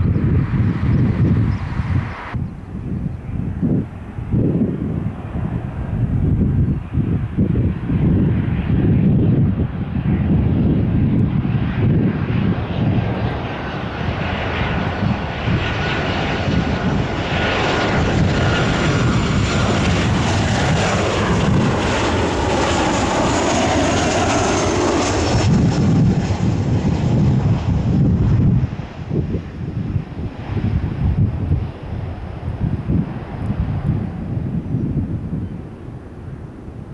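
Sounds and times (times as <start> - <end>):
jet engines roaring: 0.0 - 36.9
wind buffeting microphone: 0.0 - 36.9.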